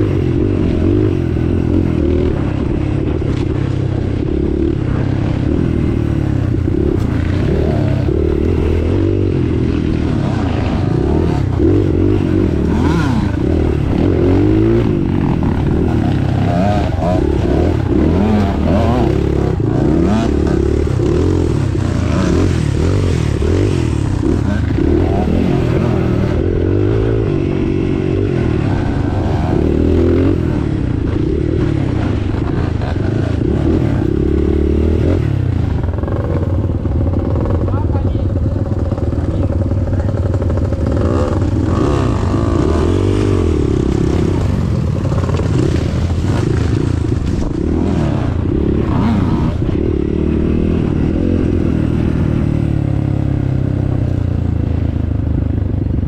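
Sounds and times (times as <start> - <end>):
vehicle engine revving: 0.0 - 55.0
vehicle rattling and scraping: 28.5 - 49.8.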